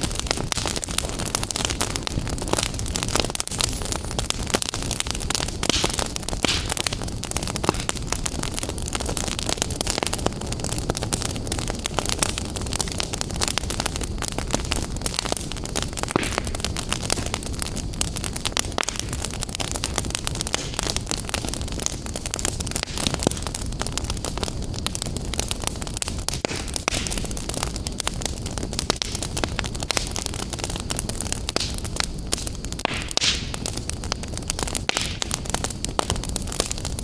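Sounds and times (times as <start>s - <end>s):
rush of flames: 0.0s - 37.0s
wood fire crackling and popping: 0.0s - 37.0s.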